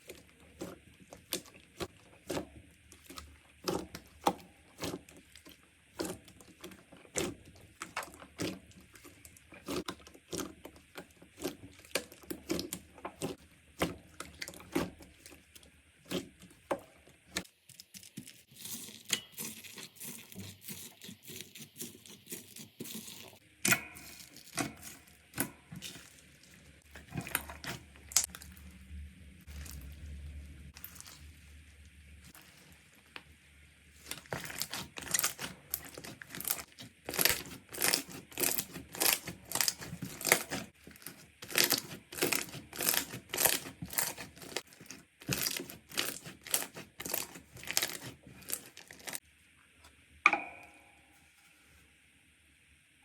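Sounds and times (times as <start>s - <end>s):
slime squishing and popping: 34.0s - 49.2s.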